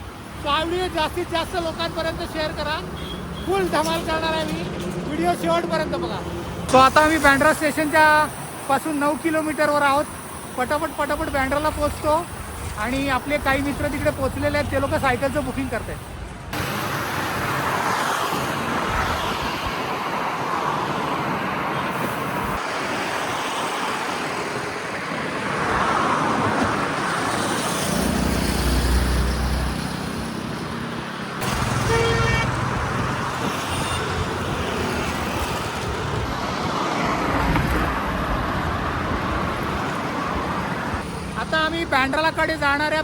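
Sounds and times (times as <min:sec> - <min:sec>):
cars passing: 0:00.0 - 0:43.0
car horn toot: 0:31.5 - 0:32.6.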